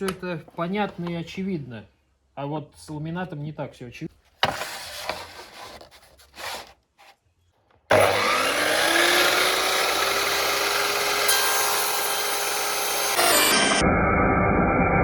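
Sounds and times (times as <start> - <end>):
saw blade cutting board: 7.9 - 13.8
saw motor whine: 7.9 - 15.0.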